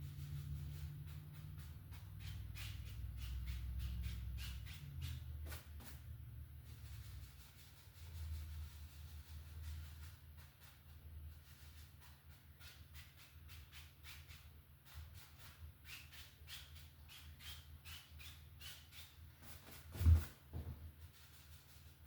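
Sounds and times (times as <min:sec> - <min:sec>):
paintbrush scrubbing on canvas: 0:00.0 - 0:22.0
loud thump: 0:20.0 - 0:20.9.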